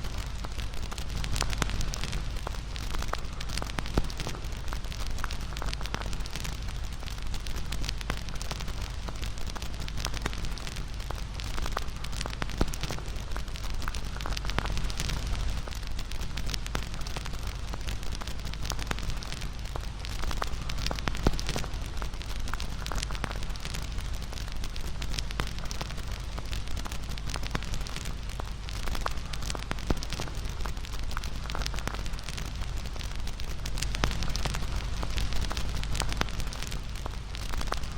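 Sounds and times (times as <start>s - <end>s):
bonfire crackling and popping: 0.0s - 37.9s.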